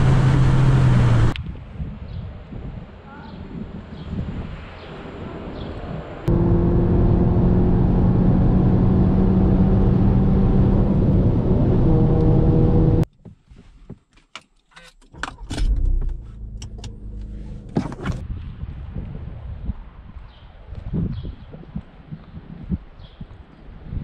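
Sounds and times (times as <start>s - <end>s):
car engine running: 0.0s - 1.4s, 6.3s - 13.0s, 15.6s - 18.2s
low engine rumble: 0.0s - 1.4s, 5.2s - 13.0s, 15.4s - 18.2s.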